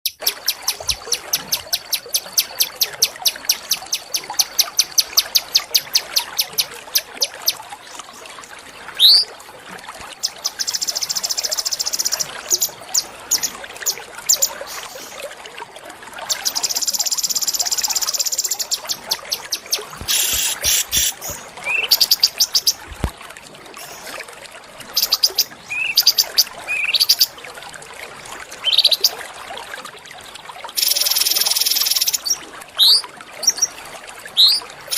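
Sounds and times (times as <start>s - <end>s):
songbirds singing: 9.0s - 9.3s, 16.3s - 23.0s, 25.0s - 27.3s, 34.4s - 34.6s.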